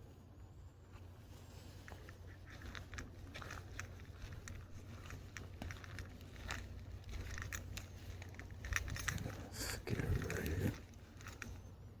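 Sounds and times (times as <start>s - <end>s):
low steady rumble: 0.0s - 12.0s
footsteps clicking and crackling: 0.5s - 12.0s.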